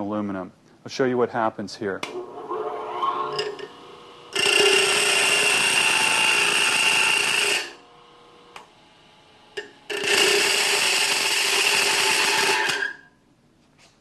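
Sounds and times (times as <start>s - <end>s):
metal grinding on stone wheel: 2.2s - 7.8s
grinding wheel spinning: 2.2s - 8.6s, 9.6s - 12.8s.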